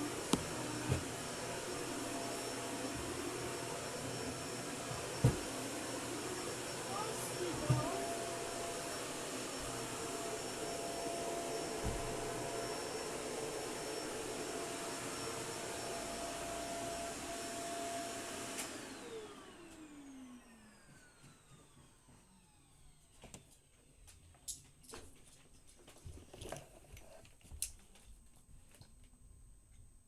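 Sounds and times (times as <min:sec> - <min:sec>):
vacuum cleaner whining: 0:00.0 - 0:24.0.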